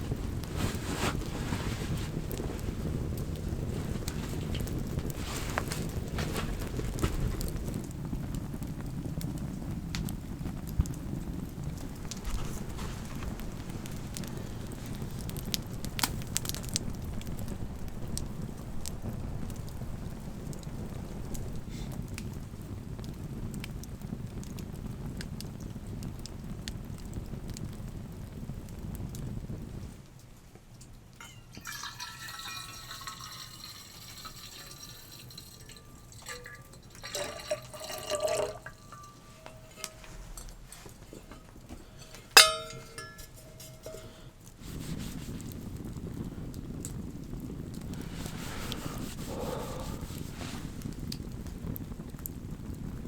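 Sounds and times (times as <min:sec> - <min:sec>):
wood fire crackling and popping: 0:00.0 - 0:53.0
water pouring into a container: 0:31.5 - 0:40.0.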